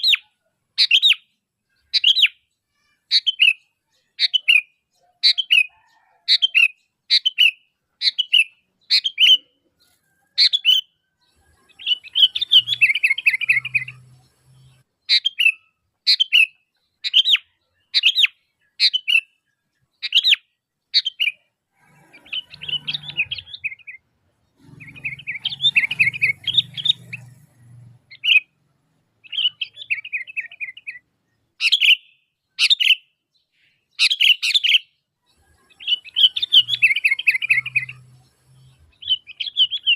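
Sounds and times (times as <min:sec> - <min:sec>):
bird chattering: 0:00.0 - 0:19.3, 0:20.0 - 0:28.6, 0:29.2 - 0:31.0, 0:31.6 - 0:33.0, 0:33.9 - 0:39.9
bird calling sharp notes: 0:11.6 - 0:14.2, 0:24.6 - 0:27.4, 0:29.2 - 0:33.1, 0:35.6 - 0:38.2.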